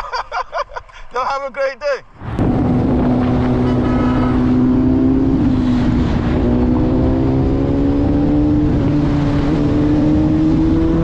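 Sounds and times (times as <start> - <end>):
wind buffeting microphone: 2.2 - 11.0
two-stroke engine accelerating: 2.4 - 11.0.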